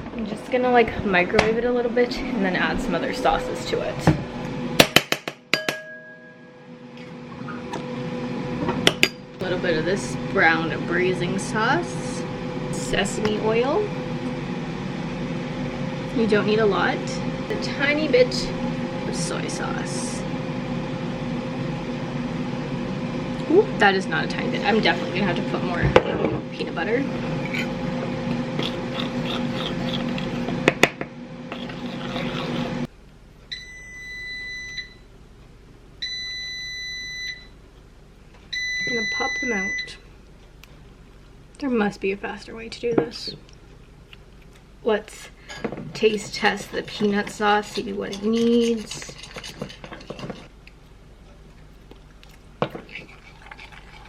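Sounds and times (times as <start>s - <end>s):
microwave oven humming: 0.0s - 48.1s
soft mouth noises: 28.6s - 30.6s, 31.5s - 32.9s
spoon noises: 28.6s - 30.6s, 31.5s - 32.8s, 46.0s - 50.5s, 51.8s - 54.0s.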